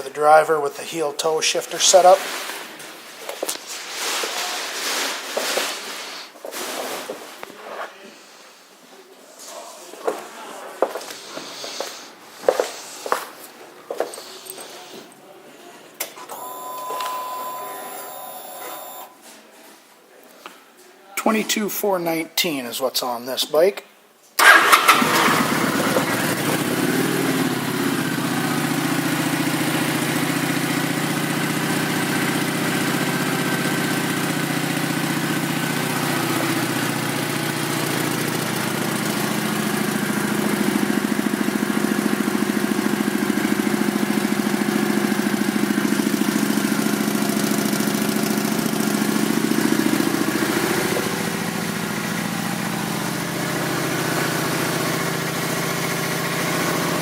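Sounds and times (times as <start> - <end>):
motorcycle engine starting and idling: 24.4 - 57.0.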